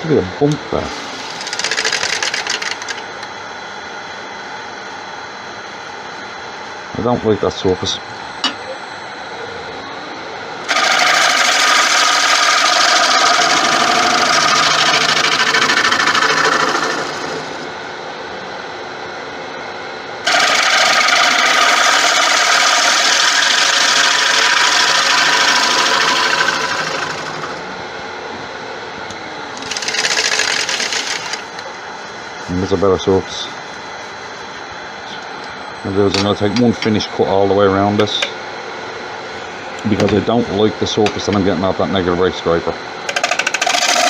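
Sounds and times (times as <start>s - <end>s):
lathe humming: 0.0s - 3.9s, 6.2s - 44.0s
turning tool cutting wood: 0.8s - 3.1s, 10.6s - 17.8s, 20.2s - 27.7s, 29.6s - 31.6s, 43.1s - 44.0s.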